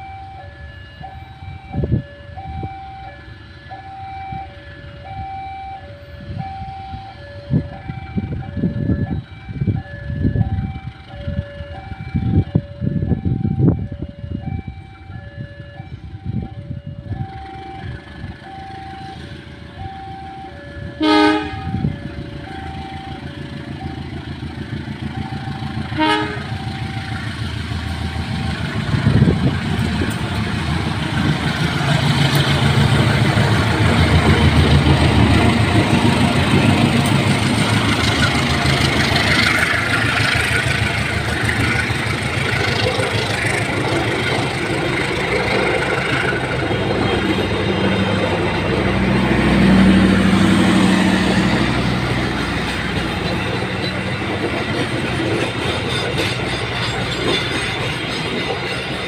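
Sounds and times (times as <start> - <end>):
two-tone level crossing alarm: 0.0 - 38.7
locomotive engines passing: 0.0 - 59.0
locomotive horn blasts: 21.0 - 22.0, 25.9 - 26.9
train wheel clatter: 24.2 - 59.0.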